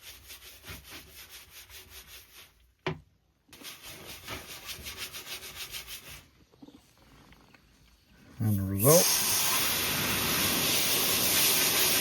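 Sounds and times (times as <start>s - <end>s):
quick scrubbing strokes: 3.6s - 6.4s.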